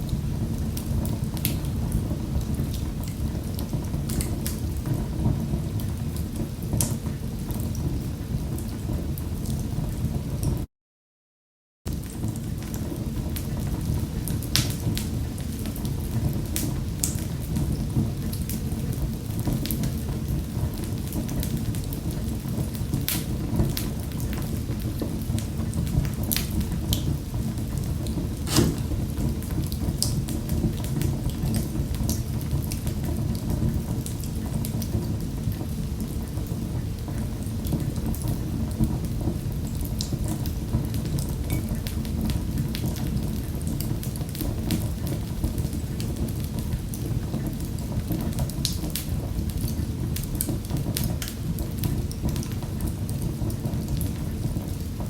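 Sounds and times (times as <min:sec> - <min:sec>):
wood fire crackling: 0:11.9 - 0:38.2.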